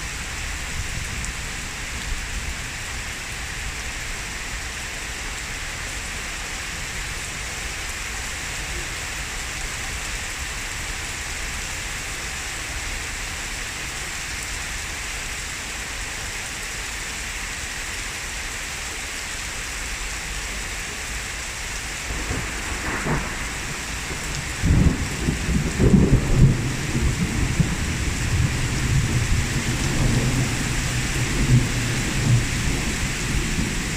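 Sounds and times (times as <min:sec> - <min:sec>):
heavy rain: 0:00.0 - 0:33.9
thunder rumbling: 0:22.0 - 0:33.9
thunder crack: 0:22.2 - 0:33.9.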